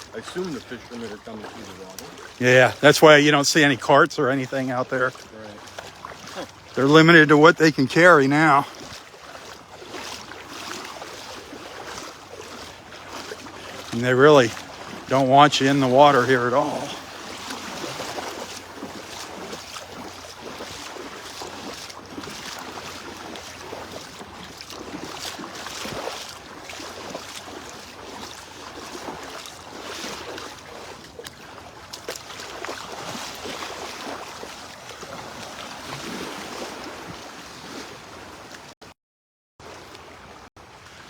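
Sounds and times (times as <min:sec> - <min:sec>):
surf on a beach: 0:00.0 - 0:31.1.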